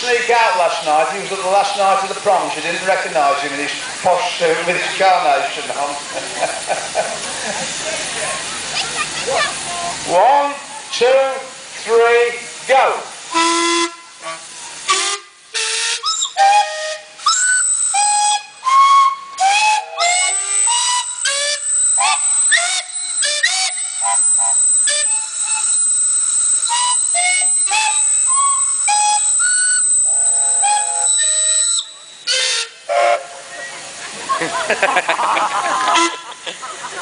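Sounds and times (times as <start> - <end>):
high steam whistle held: 12.9 - 33.9, 35.7 - 36.4
steam whistle blasts: 12.9 - 33.9, 35.7 - 36.4.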